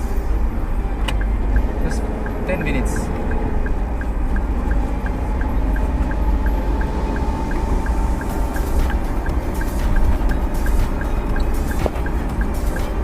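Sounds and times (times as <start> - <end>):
faint regular ticking: 0.0 - 13.0
road rumble: 0.0 - 13.0.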